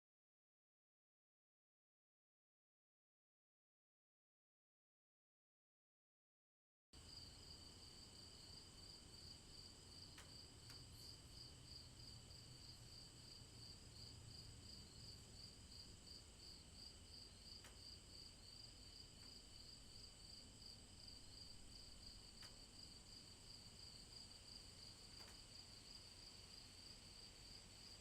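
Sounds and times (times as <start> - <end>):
faint ticks: 10.0 - 12.5, 17.6 - 18.0, 19.1 - 19.6, 21.5 - 24.0, 24.6 - 26.1.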